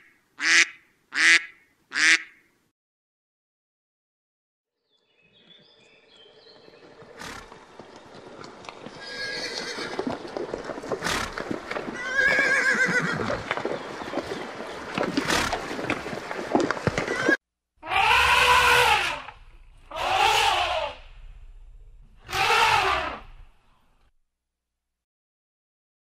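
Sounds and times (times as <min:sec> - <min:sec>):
horse neighing: 0:09.0 - 0:10.0, 0:11.0 - 0:13.5, 0:17.0 - 0:21.0, 0:22.2 - 0:23.4
hoof thuds or snorts: 0:15.0 - 0:15.9.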